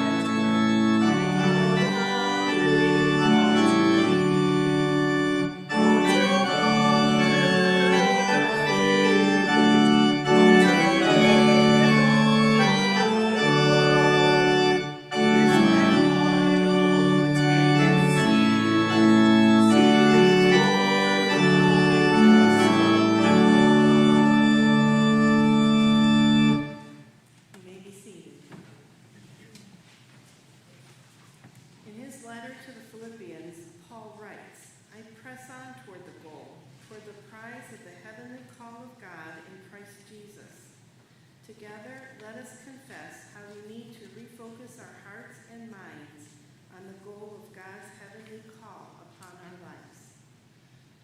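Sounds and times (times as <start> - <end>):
organ playing sustained chords: 0.0 - 27.2.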